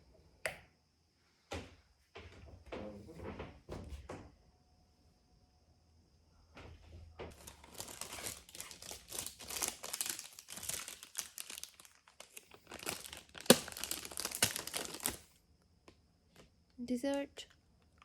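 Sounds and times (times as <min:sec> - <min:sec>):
plastic packaging crinkling: 0:07.3 - 0:15.3.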